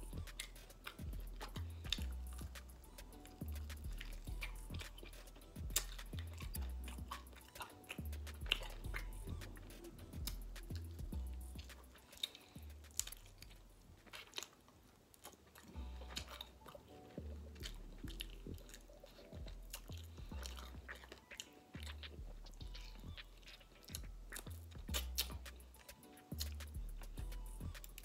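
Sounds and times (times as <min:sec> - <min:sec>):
person chewing and biting: 0:00.0 - 0:28.0.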